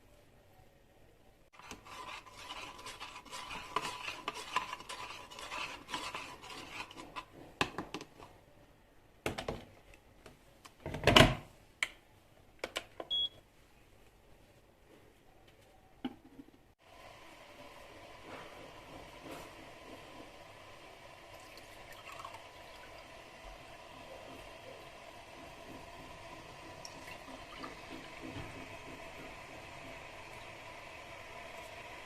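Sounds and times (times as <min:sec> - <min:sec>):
rubbing and scraping: 0:01.6 - 0:07.6.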